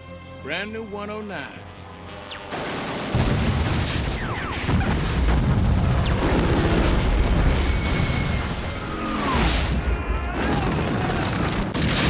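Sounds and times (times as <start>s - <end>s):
rapid machine-gun fire: 2.5s - 8.2s, 10.4s - 12.0s
explosion booms: 3.1s - 8.6s.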